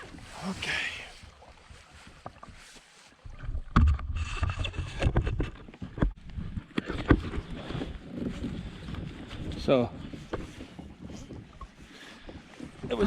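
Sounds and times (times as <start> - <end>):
knocks and bumps on kayak: 3.3 - 13.0
wind rumble on microphone: 3.3 - 13.0.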